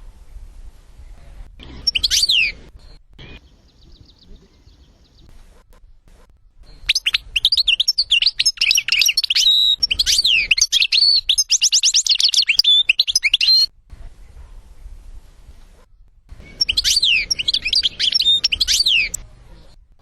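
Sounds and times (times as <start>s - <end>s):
goldfinch twittering song: 1.6s - 5.6s, 6.5s - 13.7s, 16.4s - 19.2s.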